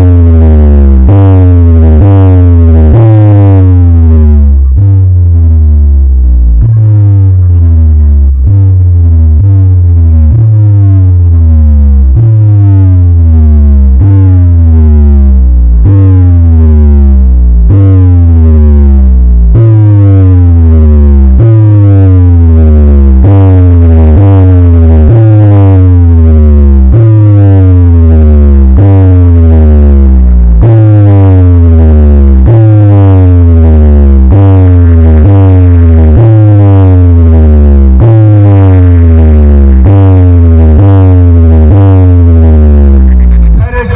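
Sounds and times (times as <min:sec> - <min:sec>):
booming bass notes: 0:00.0 - 0:43.9.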